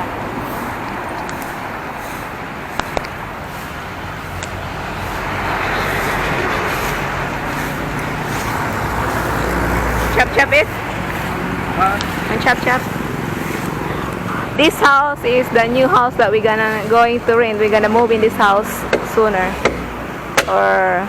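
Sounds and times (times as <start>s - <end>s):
angle grinder chainsaw cutting log: 0.4s - 14.5s.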